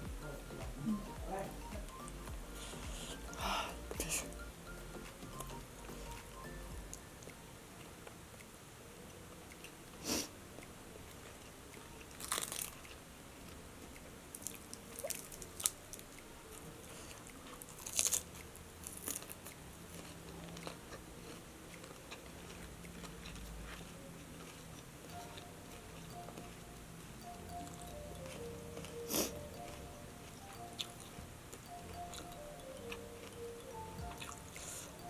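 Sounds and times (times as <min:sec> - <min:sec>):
crunchy bites of fried chicken: 0:11.1 - 0:13.0, 0:13.9 - 0:16.3, 0:16.9 - 0:24.9.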